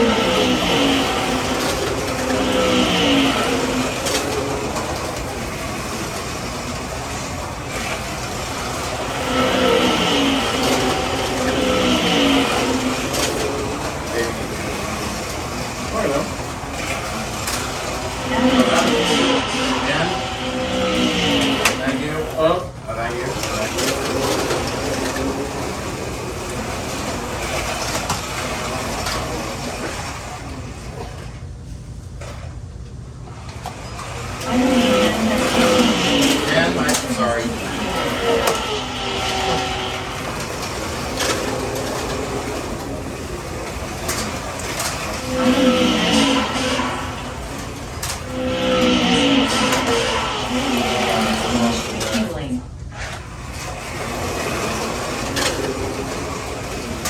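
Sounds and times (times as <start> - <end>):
small electric motors whirring: 0.0 - 29.2, 33.9 - 57.0
slot car wheels rattling: 33.8 - 52.4.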